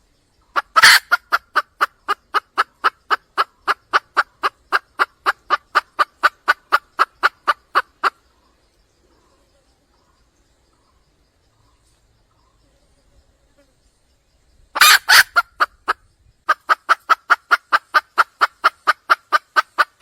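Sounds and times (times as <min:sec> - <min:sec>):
hen clucking rapidly: 0:00.4 - 0:08.3, 0:14.8 - 0:20.0.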